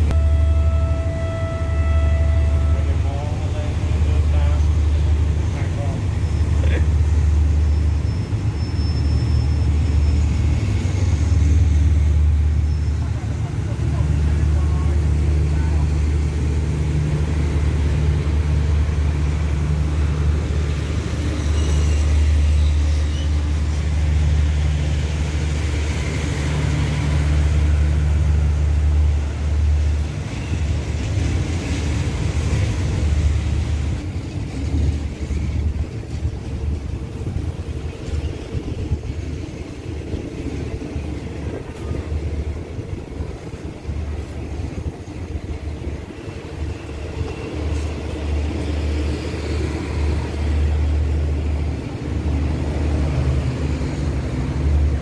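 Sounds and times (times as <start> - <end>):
diesel engine drone: 0.0 - 8.2
train coaches rolling past: 0.0 - 55.0.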